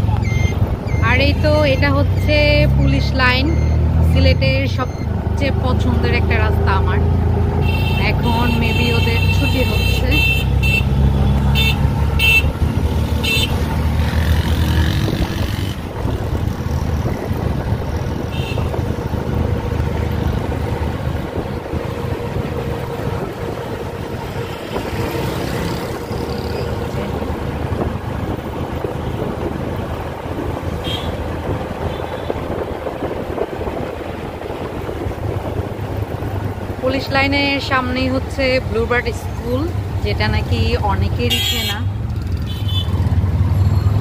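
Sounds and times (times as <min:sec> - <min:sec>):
vehicle engines running: 0:00.0 - 0:44.0
car horn toots: 0:07.6 - 0:12.6, 0:13.2 - 0:13.6, 0:18.3 - 0:18.8, 0:30.8 - 0:31.2, 0:41.3 - 0:41.9, 0:42.5 - 0:43.0.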